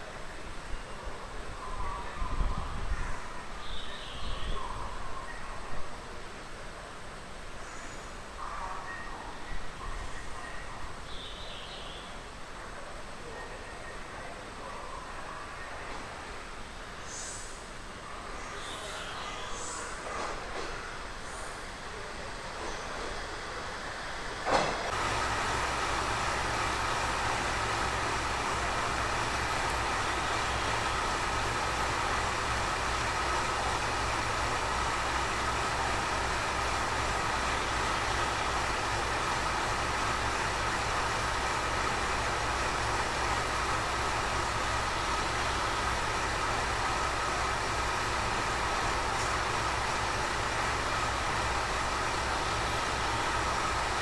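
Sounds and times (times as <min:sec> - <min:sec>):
constant whine: 0:24.9 - 0:54.0
vehicle running noise: 0:24.9 - 0:54.0.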